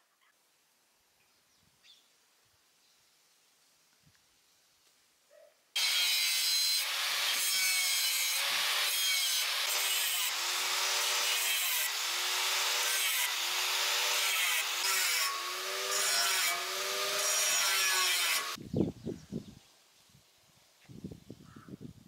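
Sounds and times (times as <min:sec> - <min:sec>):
angle grinder grinding steel: 0:05.8 - 0:18.6.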